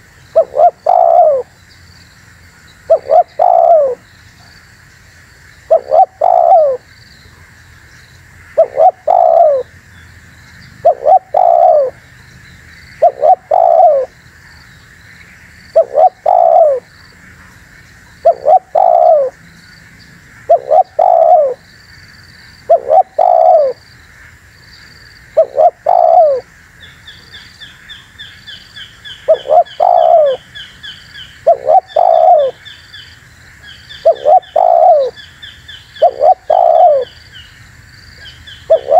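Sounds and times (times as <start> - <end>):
dove cooing: 0.4 - 1.5, 2.9 - 4.0, 5.7 - 6.9, 8.6 - 9.7, 10.8 - 12.0, 13.0 - 14.1, 15.7 - 16.9, 18.2 - 19.4, 20.4 - 21.6, 22.7 - 23.8, 25.4 - 26.5, 29.2 - 30.4, 31.4 - 32.6, 34.0 - 35.2, 36.0 - 37.2, 38.2 - 38.9.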